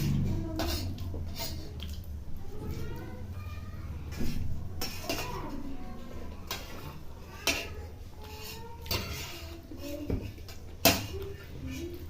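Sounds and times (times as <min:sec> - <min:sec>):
spoons clinking against dishes: 0:04.8 - 0:05.6, 0:06.4 - 0:12.0.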